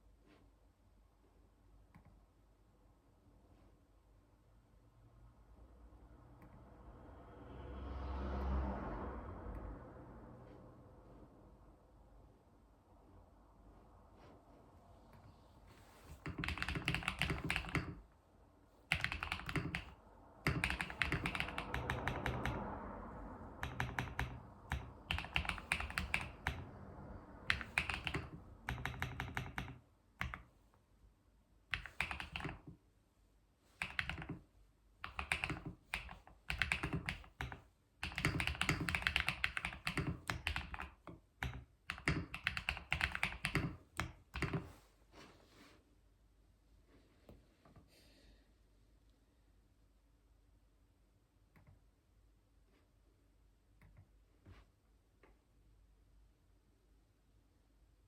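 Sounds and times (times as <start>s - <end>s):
keyboard typing: 15.9s - 18.0s, 18.9s - 22.8s, 23.5s - 26.8s, 27.4s - 30.5s, 31.7s - 32.8s, 33.8s - 44.8s.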